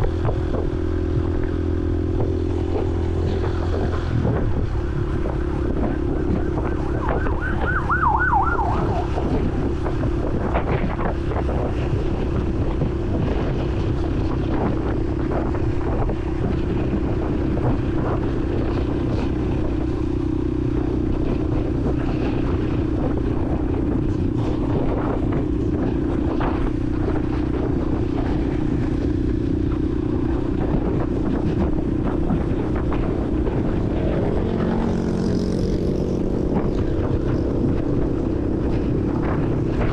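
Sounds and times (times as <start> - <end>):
motorcycle engine running: 0.0 - 39.9
road and wind noise: 0.0 - 39.9
wavering tone sweeping: 4.6 - 9.3.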